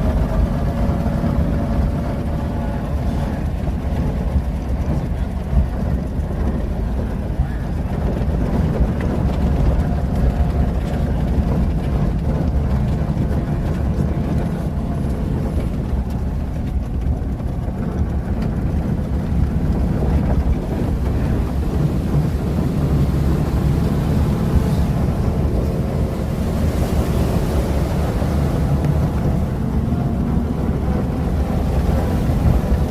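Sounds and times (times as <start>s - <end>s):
car engine running: 0.0s - 32.9s
wind rumbling on microphone: 0.0s - 32.9s.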